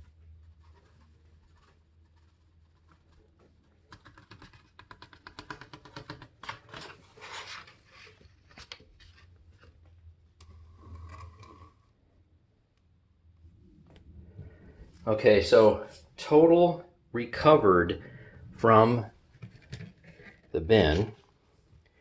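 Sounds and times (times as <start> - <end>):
rustling scrapes: 0.0 - 3.6, 6.8 - 9.8, 10.6 - 11.9.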